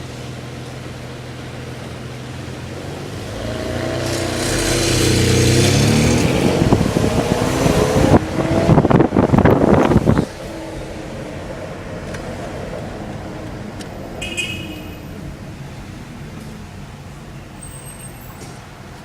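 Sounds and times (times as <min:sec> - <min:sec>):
car engine accelerating: 0:01.8 - 0:14.1.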